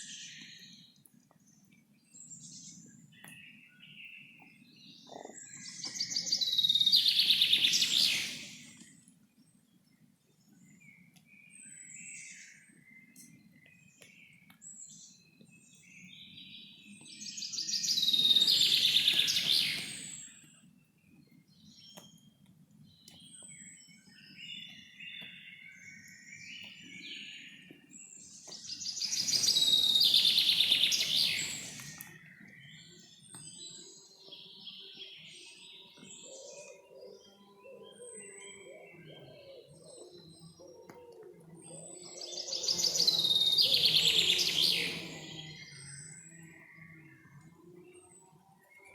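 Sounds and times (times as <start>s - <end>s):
small birds chirping: 0.0s - 48.9s
loud trilling bird song: 2.1s - 9.0s, 10.5s - 48.9s.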